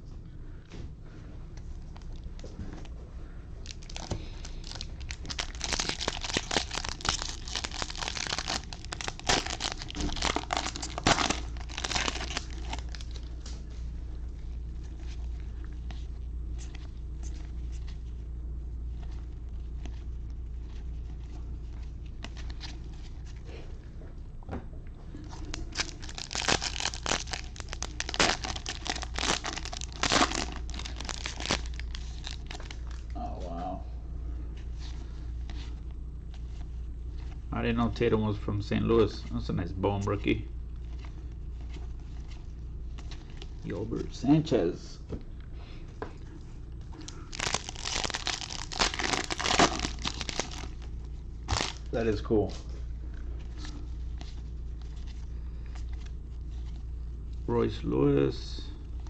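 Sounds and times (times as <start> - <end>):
plastic foil wrappers crinkling: 3.6 - 13.5, 25.4 - 33.1, 47.0 - 52.5.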